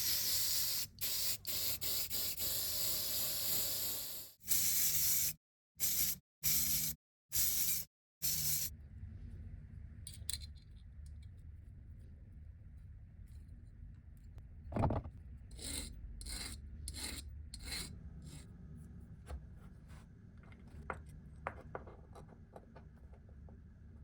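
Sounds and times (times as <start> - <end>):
knock on small part: 14.7 - 15.1.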